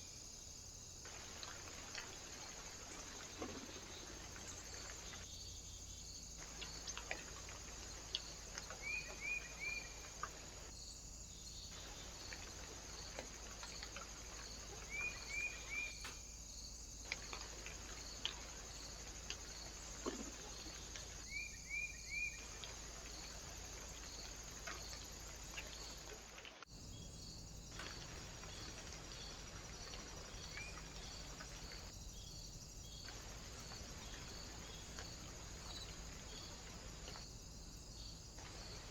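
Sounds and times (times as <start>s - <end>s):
small bird chirps: 14.8s - 16.3s.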